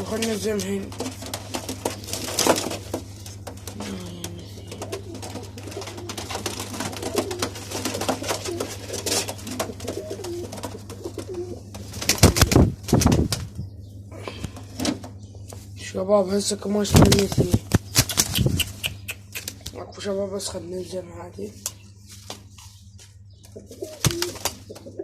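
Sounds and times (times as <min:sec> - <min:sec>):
clicks and shuffling: 0:00.0 - 0:13.4
pigeons cooing: 0:00.0 - 0:15.8, 0:17.0 - 0:21.0, 0:21.9 - 0:25.0.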